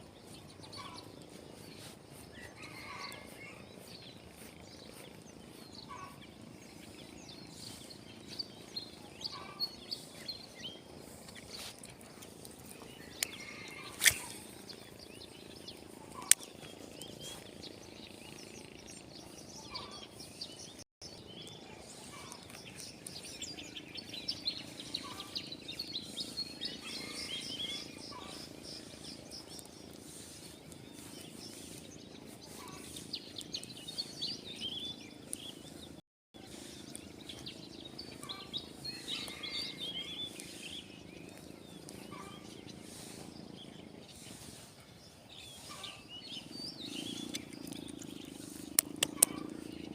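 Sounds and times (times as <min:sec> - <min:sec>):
outdoor background noise: 0:00.0 - 0:49.9
small birds chirping: 0:00.0 - 0:49.9
sharp clicks: 0:47.3 - 0:49.6.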